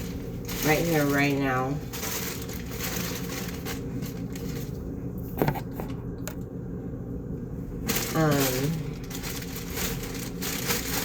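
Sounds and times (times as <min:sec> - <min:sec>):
bag clicks and rustles: 0:00.0 - 0:04.8, 0:07.9 - 0:11.0.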